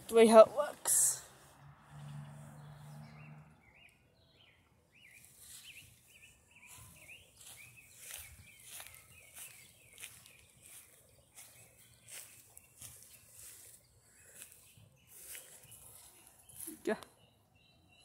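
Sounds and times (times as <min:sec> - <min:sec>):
faint bird chirping: 0:00.9 - 0:18.0
footsteps through grass: 0:05.1 - 0:17.0.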